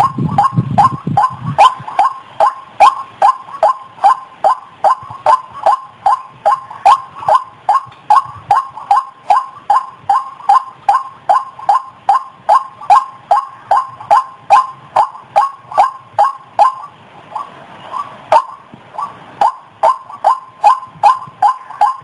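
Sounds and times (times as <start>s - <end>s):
waterhen call repeated: 0.0s - 22.0s.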